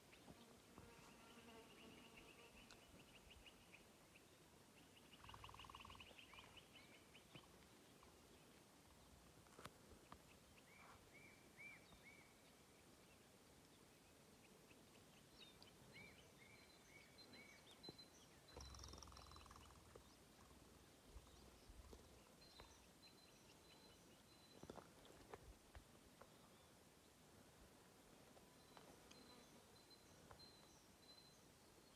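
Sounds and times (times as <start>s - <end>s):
distant songbird singing: 1.6s - 7.5s, 14.7s - 20.3s.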